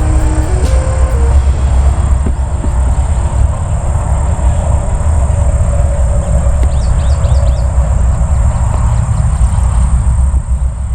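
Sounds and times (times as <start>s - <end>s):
wind buffeting microphone: 0.0s - 10.9s
bird chirping: 6.6s - 7.8s.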